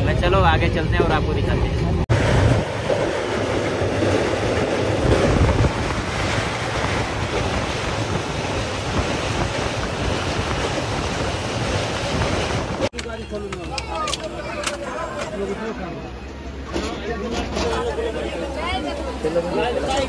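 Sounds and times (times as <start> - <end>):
wind buffeting microphone: 0.0 - 13.0
train wheel and rail rush: 0.0 - 20.0.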